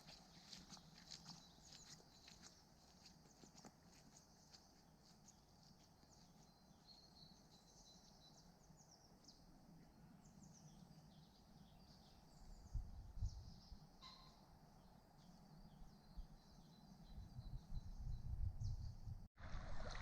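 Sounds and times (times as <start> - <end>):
birds chirping and trilling: 6.2 - 14.5.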